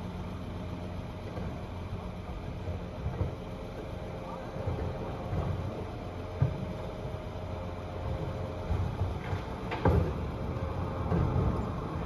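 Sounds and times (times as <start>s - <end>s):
lorry engine rumble: 0.0s - 12.0s
steady whine: 0.0s - 12.0s
bins thumping and knocking: 4.6s - 6.8s, 8.0s - 10.4s, 11.0s - 12.0s.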